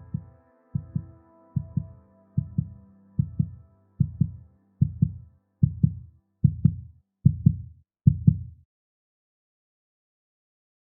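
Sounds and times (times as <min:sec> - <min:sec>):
soft held chord: 0:00.0 - 0:06.4
heartbeat thumps: 0:00.0 - 0:08.6.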